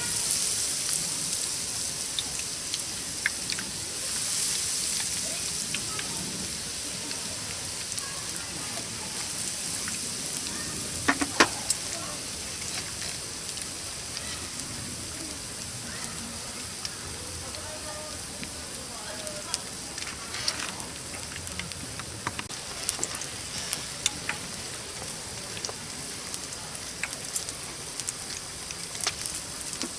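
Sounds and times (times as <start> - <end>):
campfire hissing and crackling: 0.0 - 29.9
sharp fire pops: 4.8 - 17.2, 19.3 - 29.9.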